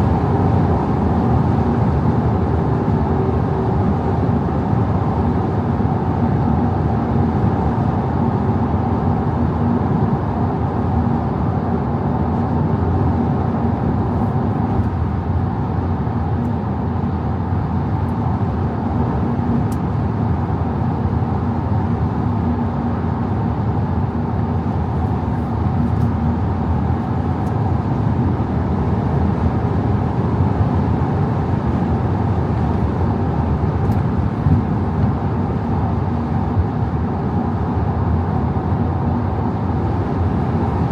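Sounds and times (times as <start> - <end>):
diesel engine drone: 0.0 - 40.9
road noise: 11.6 - 40.9.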